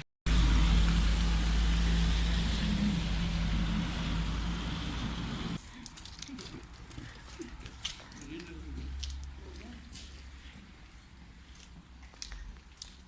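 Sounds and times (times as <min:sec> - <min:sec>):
car engine rumble: 0:00.3 - 0:05.6.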